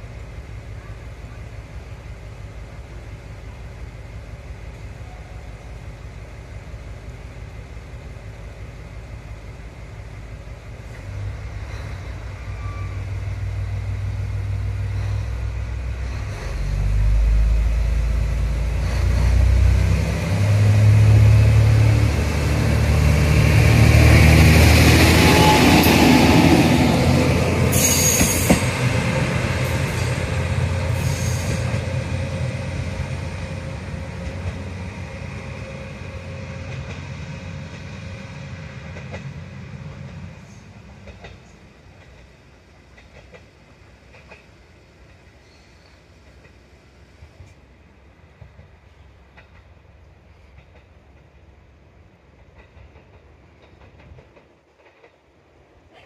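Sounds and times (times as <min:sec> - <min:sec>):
diesel train engine passing: 0:00.0 - 0:56.0
train wheel noise: 0:01.6 - 0:56.0.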